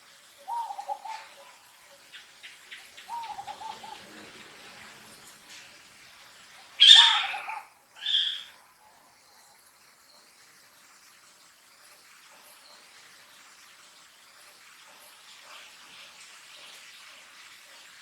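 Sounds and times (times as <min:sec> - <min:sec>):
macaque high-pitched calls: 0:06.8 - 0:08.6.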